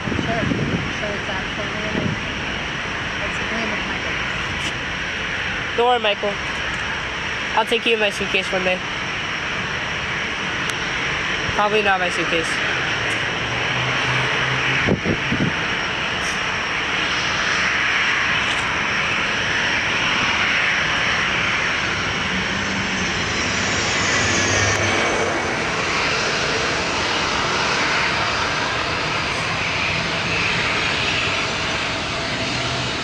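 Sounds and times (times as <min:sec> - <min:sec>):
jet airliner engines: 0:00.0 - 0:33.0.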